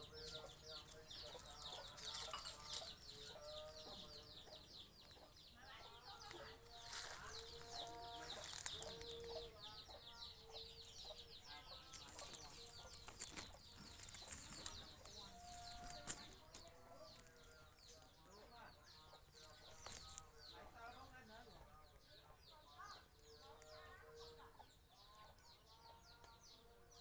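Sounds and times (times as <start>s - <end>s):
chickens clucking: 0.0s - 20.7s.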